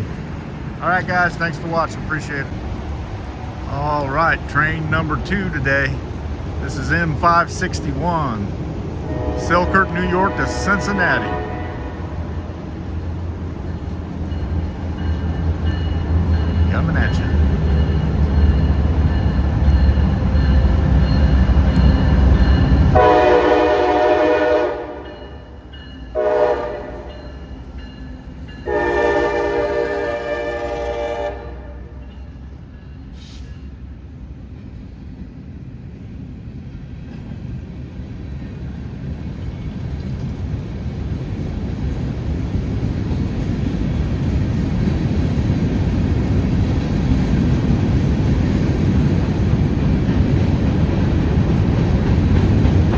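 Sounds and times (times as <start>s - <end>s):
diesel locomotives running: 0.0s - 52.9s
train rumbling: 0.0s - 52.9s
locomotive air horn blasts: 9.1s - 12.5s, 22.9s - 25.1s, 26.2s - 27.2s, 28.7s - 32.0s.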